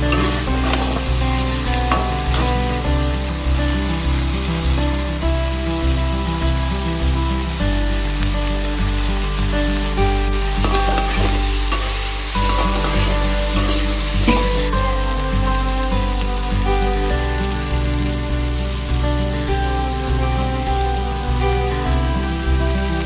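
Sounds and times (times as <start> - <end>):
metal spatula scraping a pan: 0.0 - 2.8, 10.6 - 14.7
background music: 0.0 - 23.0
food sizzling in a wok: 0.0 - 23.0.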